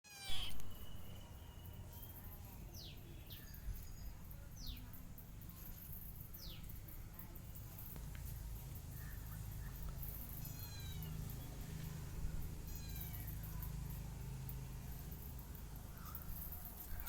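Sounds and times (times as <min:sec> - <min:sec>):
faint bird chirps: 0:00.1 - 0:06.8.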